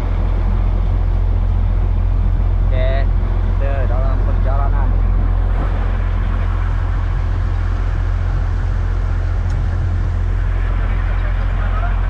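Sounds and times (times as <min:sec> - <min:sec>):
boat engine drone: 0:04.0 - 0:09.3
wind and water rushing: 0:05.2 - 0:07.1.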